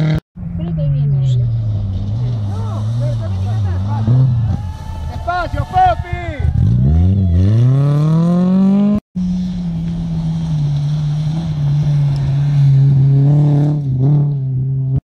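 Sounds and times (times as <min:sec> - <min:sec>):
car engine revving hard: 0:06.4 - 0:09.4.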